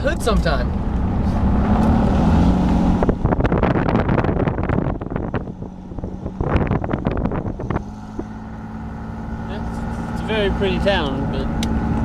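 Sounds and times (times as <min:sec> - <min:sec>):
vehicle engine and road noise: 0:00.0 - 0:12.0
wind on microphone: 0:01.4 - 0:08.6.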